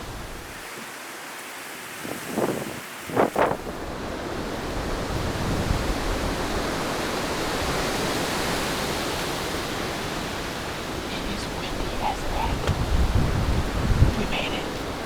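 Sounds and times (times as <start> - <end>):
strong wind rushing through woods: 0.0 - 15.0.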